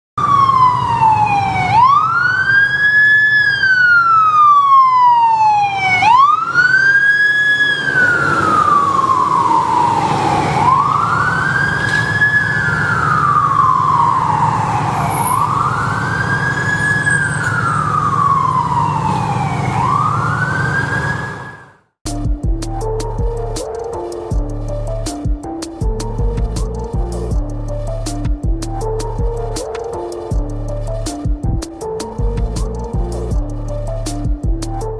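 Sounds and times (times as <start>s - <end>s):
fire engine siren wailing: 0.2s - 21.9s, 22.8s - 31.2s
music: 22.0s - 34.9s
low engine rumble: 22.3s - 34.9s.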